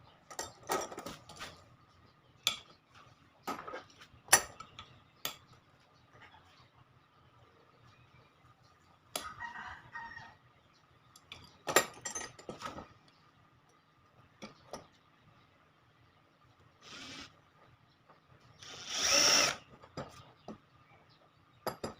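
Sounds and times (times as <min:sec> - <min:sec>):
rooster crowing: 0:09.2 - 0:10.4.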